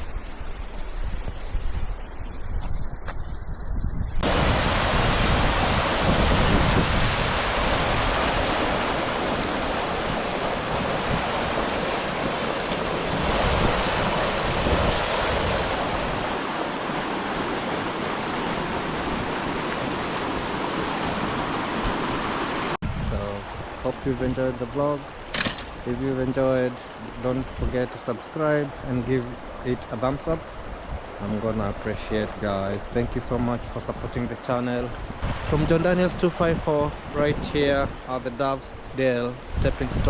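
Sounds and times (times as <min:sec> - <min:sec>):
wind buffeting microphone: 0:00.0 - 0:16.5, 0:34.9 - 0:38.0
river water rushing over stones: 0:04.3 - 0:22.8.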